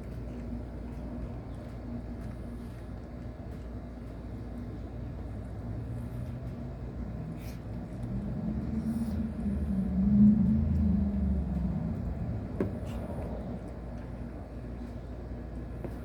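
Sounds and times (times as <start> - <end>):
low rumble: 7.8 - 15.4.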